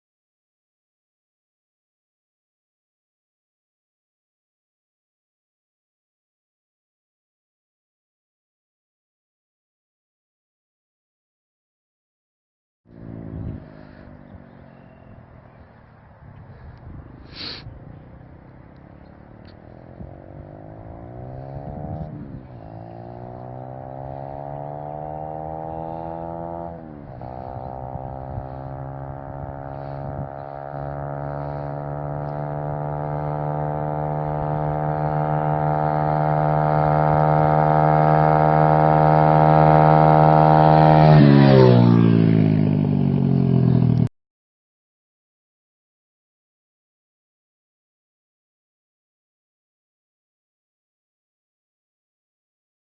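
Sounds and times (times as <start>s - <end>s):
pit bike engine accelerating past: 12.9s - 44.1s.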